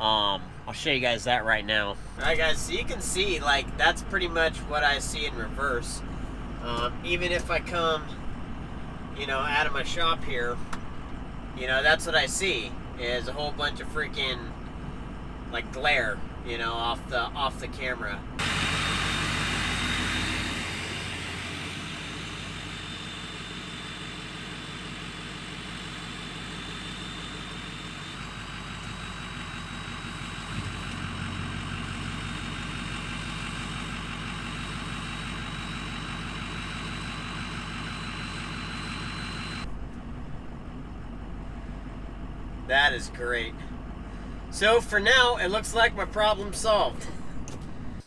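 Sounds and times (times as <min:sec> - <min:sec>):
diesel engine idling: 0:00.0 - 0:48.0
thin high whine: 0:35.1 - 0:39.7.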